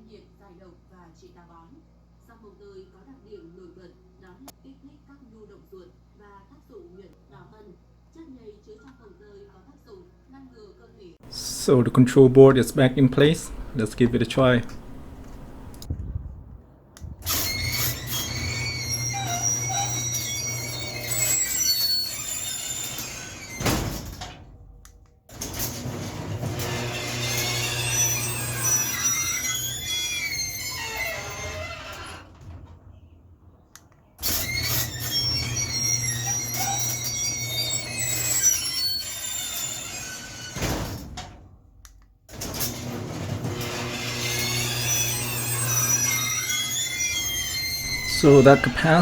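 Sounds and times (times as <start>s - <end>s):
garage door opener motor hum: 11.2s - 15.9s, 17.2s - 24.4s, 25.3s - 32.7s, 34.2s - 41.4s, 42.3s - 49.0s
garage door squealing: 11.2s - 15.9s, 17.2s - 24.5s, 25.3s - 33.1s, 34.2s - 41.4s, 42.3s - 49.0s.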